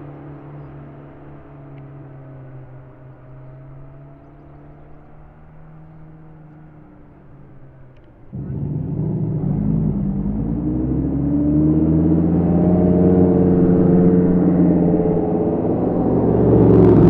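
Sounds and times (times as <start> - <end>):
car engine revving: 8.3 - 17.0.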